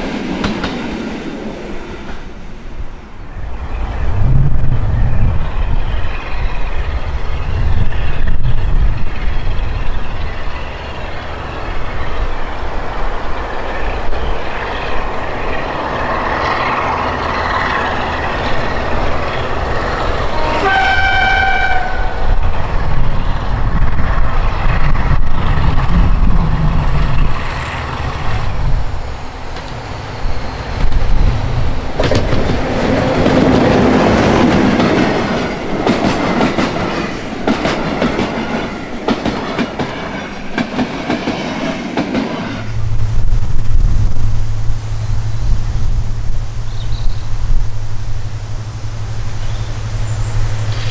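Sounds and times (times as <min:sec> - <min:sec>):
train wheels on rails: 0:00.0 - 0:50.9
diesel locomotive engine running: 0:03.3 - 0:50.9
locomotive horn: 0:20.2 - 0:22.3.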